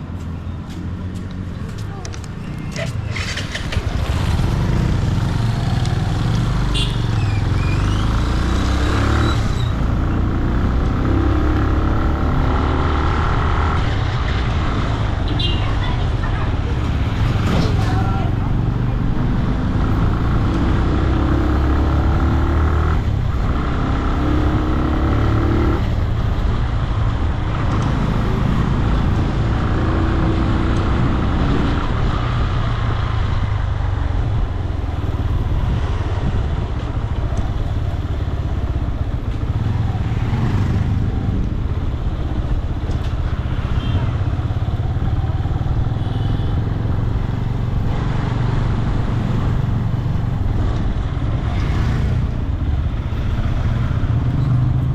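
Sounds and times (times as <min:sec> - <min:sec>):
motorcycle engine rumbling: 0:00.0 - 0:12.4.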